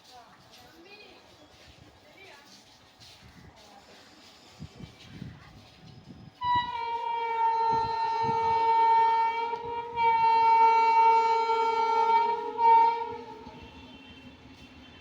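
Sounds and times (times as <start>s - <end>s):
locomotive horn two-note blast: 6.4s - 15.0s.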